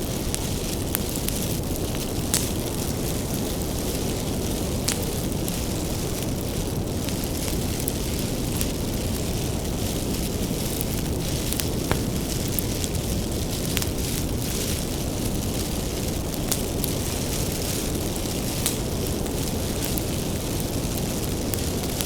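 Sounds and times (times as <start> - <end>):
fire roaring: 0.0 - 22.0
wood crackling and popping: 0.0 - 22.0.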